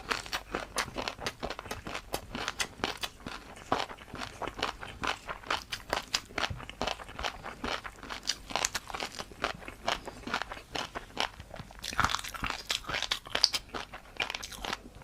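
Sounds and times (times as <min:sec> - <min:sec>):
chewing crunchy noodles: 0:00.0 - 0:15.0.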